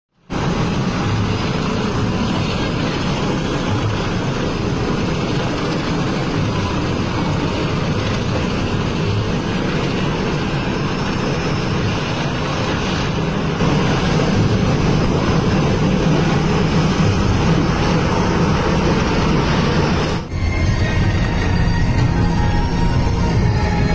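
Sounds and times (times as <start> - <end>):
helicopter rotor and engine: 0.1 - 23.9.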